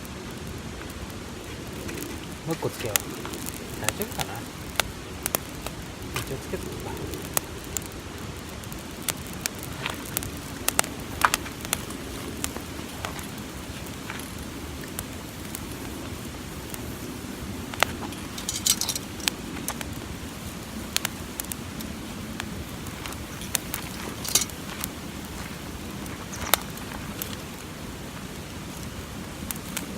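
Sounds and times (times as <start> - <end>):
campfire crackling and popping: 0.0 - 29.9
steady low rush: 0.0 - 29.9.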